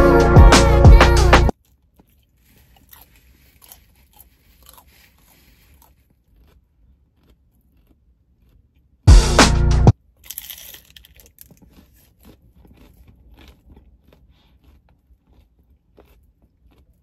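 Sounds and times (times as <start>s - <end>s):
burst of music: 0.0s - 1.5s, 9.1s - 9.9s
person chewing pizza: 1.5s - 9.0s, 10.1s - 17.0s.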